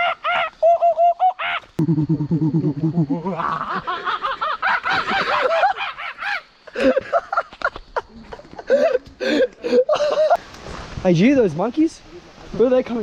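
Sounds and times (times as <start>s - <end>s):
men laughing higher: 0.0s - 10.4s
low rapid pulsing laugh: 0.7s - 10.4s.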